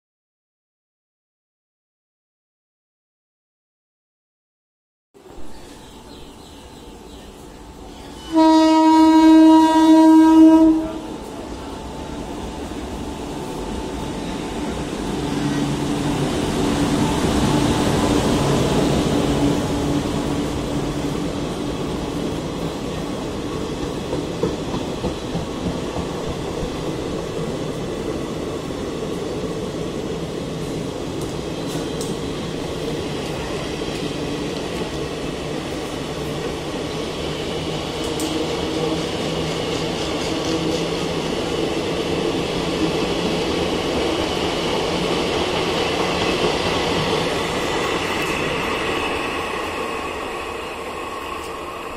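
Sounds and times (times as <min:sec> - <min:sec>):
train rumbling on rails: 0:05.2 - 0:51.9
locomotive horn blast: 0:08.2 - 0:11.3.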